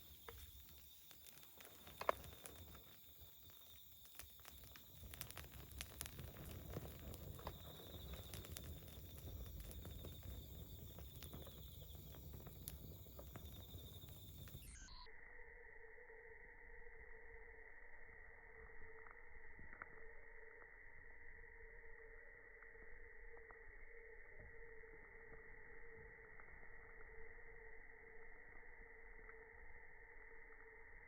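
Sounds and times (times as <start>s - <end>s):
campfire crackling: 0.0s - 14.8s.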